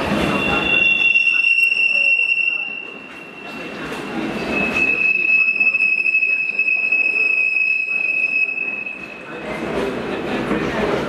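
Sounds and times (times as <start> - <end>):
train wheels squealing: 0.0 - 9.4.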